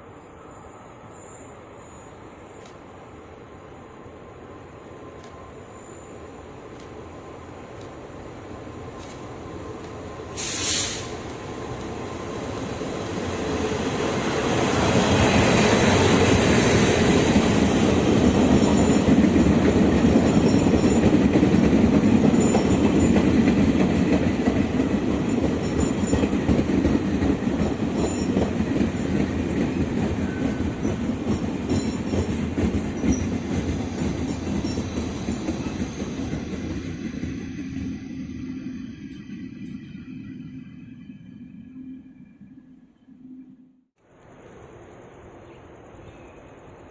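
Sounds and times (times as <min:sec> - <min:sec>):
train rumbling past: 0:00.0 - 0:46.9
short hiss-like noise: 0:10.3 - 0:11.4.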